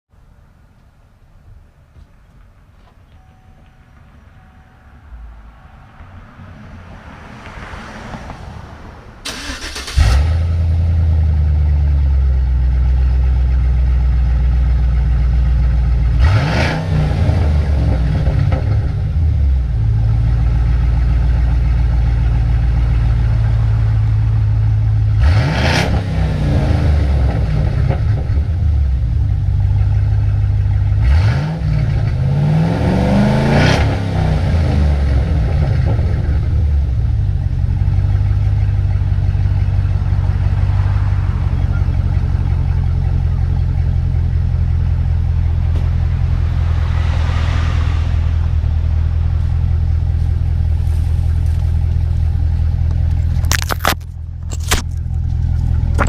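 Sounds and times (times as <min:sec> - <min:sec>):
engine cranking: 0:09.2 - 0:10.3
deep engine idle and revving: 0:09.2 - 0:56.0.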